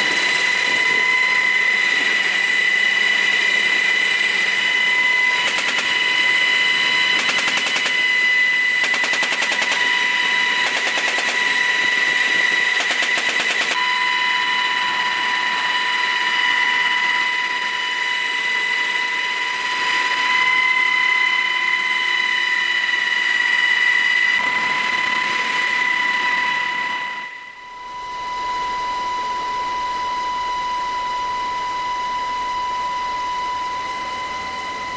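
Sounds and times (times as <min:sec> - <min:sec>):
helicopter high-pitched whine: 0:00.0 - 0:34.9
machine gun rapid fire: 0:05.3 - 0:13.8.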